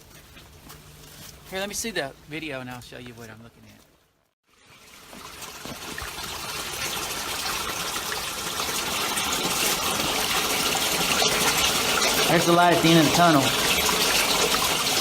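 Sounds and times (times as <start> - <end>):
creek water rushing: 4.7 - 15.0.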